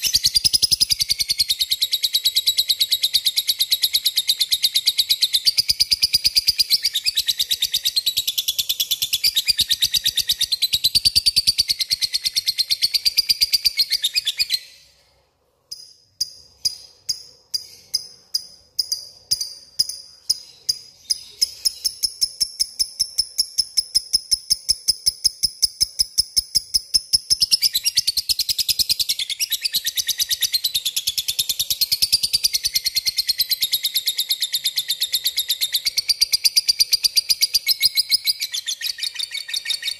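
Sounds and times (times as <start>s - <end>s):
lovebird chattering and trilling: 15.7s - 39.9s.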